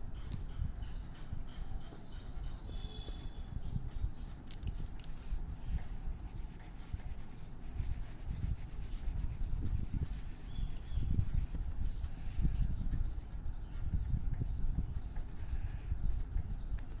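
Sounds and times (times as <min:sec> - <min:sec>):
sharp clicks: 0:03.6 - 0:05.4
colouring scratching on paper: 0:05.2 - 0:13.6.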